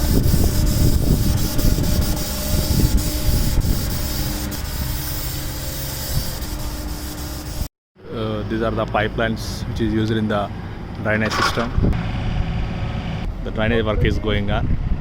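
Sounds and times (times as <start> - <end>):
paint sprayer hissing: 0.0 - 7.7.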